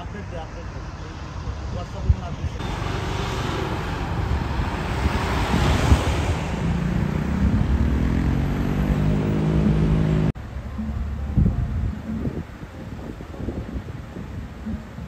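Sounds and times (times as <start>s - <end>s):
wind rushing over microphone: 1.4s - 10.4s, 11.0s - 15.0s
vehicle engine hum: 2.4s - 15.0s.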